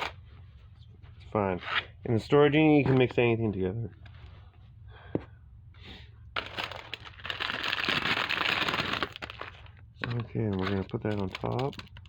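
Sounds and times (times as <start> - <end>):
plastic packaging crinkling: 6.4 - 12.0.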